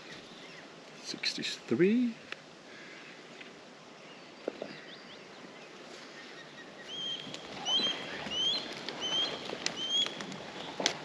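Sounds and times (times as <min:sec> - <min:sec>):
osprey whistled calls: 0:06.2 - 0:10.8.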